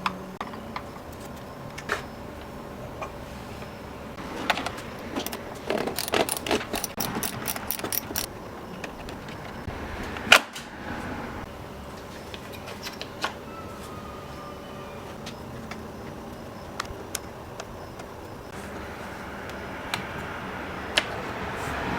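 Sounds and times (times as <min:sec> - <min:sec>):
hand tools clicking and clattering: 0:00.0 - 0:10.6.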